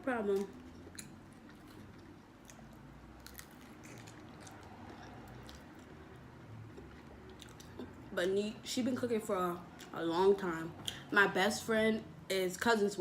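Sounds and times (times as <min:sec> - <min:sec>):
chewing food: 0:00.2 - 0:08.1.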